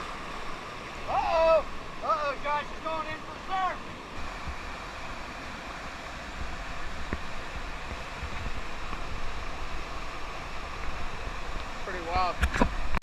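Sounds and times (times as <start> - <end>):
river whitewater rushing: 0.0 - 13.0
wind rumbling on microphone: 4.0 - 13.0.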